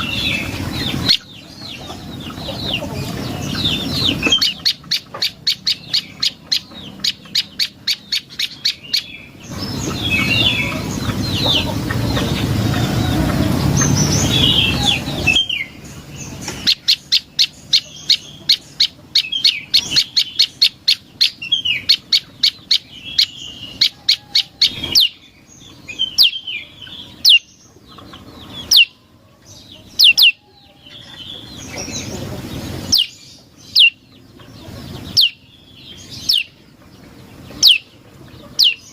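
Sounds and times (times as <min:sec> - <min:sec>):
songbird chirping: 0:00.0 - 0:38.9
loud rushing noise: 0:09.4 - 0:16.7.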